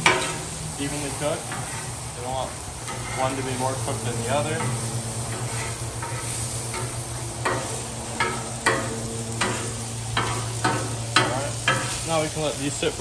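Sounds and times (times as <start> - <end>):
metal spatula scraping and tapping: 0.0 - 0.4, 1.4 - 2.0, 2.8 - 12.0
onions sizzling on a griddle: 0.0 - 13.0
steady low hum: 0.0 - 13.0.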